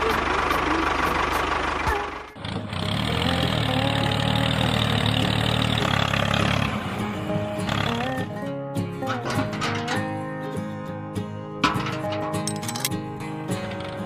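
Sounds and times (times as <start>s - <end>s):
engine running with fast pulse: 0.0s - 7.0s
low engine hum: 0.0s - 8.4s.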